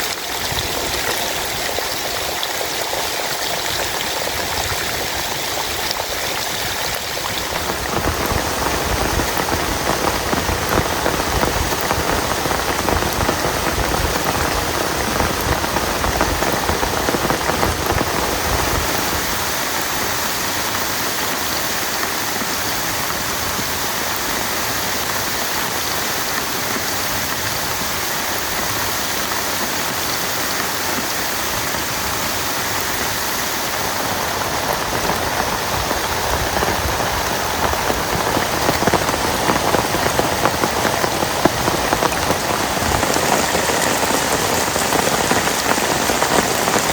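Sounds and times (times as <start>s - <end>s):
heavy rain hissing: 0.0s - 46.9s.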